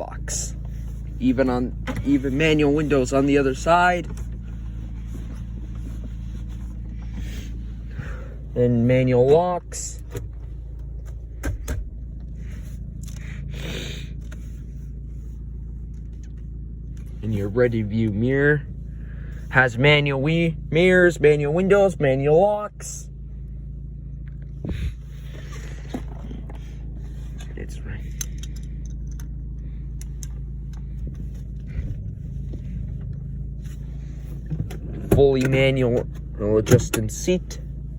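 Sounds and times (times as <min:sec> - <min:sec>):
car engine idling: 0:00.0 - 0:37.9
scraping rustle: 0:00.5 - 0:08.0.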